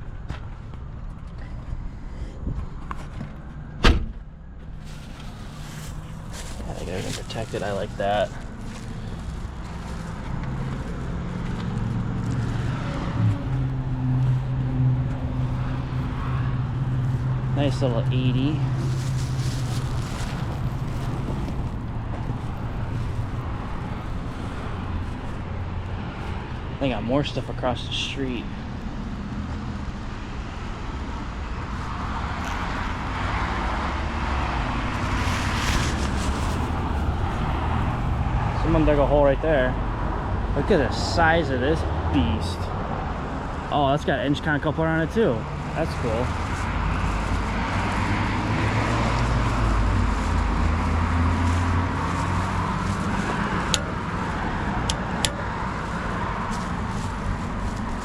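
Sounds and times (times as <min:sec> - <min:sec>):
steady low traffic rumble: 0:00.0 - 0:58.0
vehicle engine and tyre noise: 0:00.0 - 0:58.0.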